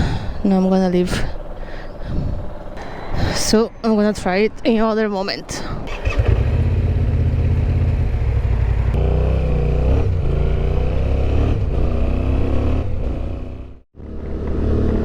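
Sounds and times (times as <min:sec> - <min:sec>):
motorcycle engine revving: 0:05.9 - 0:15.0.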